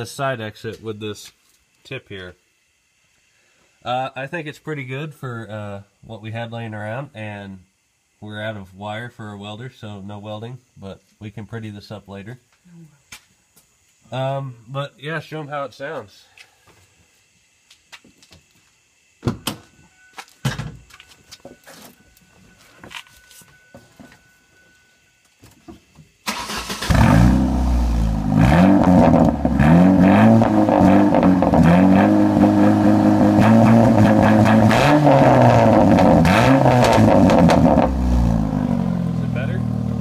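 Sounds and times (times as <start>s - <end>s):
car engine revving loudly: 26.5s - 40.0s.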